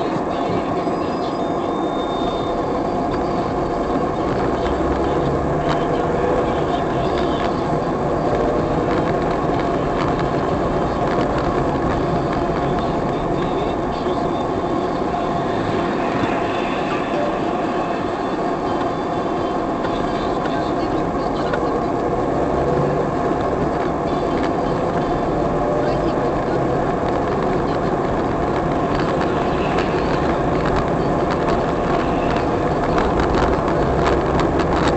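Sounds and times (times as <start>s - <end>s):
vehicle engine rumbling: 0.0s - 34.9s.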